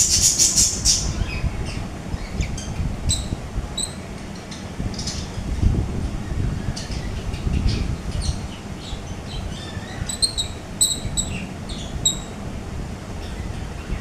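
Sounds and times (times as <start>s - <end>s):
steady low rumble: 0.8s - 14.0s
parakeet high chirps: 8.2s - 12.3s.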